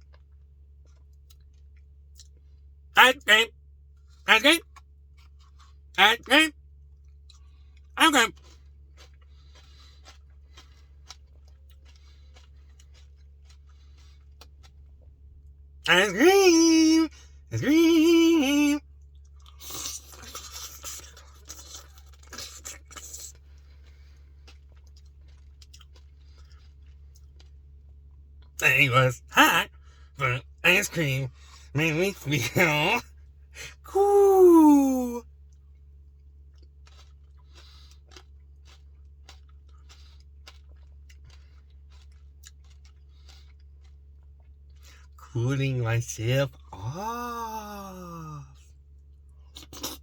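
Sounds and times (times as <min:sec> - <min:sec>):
crunchy chewing: 0:04.0 - 0:05.9, 0:06.8 - 0:15.5, 0:18.8 - 0:28.6, 0:35.4 - 0:45.2, 0:48.4 - 0:50.0.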